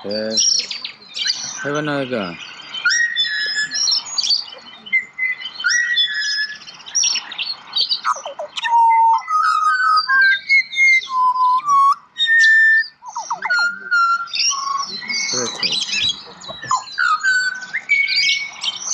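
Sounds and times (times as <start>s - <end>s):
butcherbirds singing: 0.0s - 18.9s.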